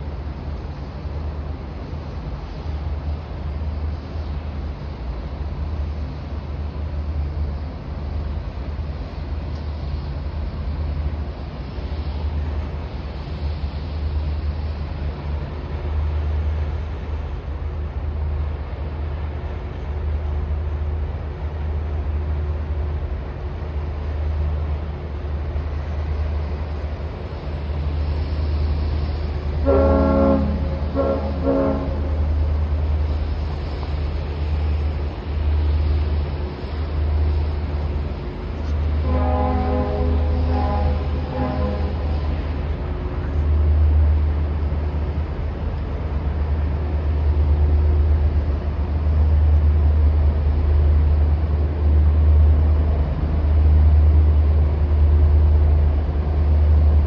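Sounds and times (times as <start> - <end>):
steady low rumble: 0.0 - 57.0
loud horn blasts: 29.6 - 32.4, 39.0 - 42.4.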